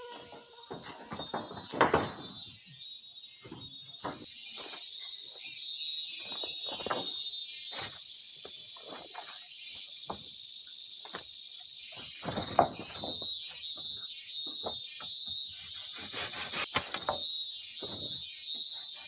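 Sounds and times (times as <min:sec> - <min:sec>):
insects chorus: 0:00.0 - 0:19.0
close knocks and rustles: 0:00.1 - 0:02.4, 0:12.1 - 0:15.4.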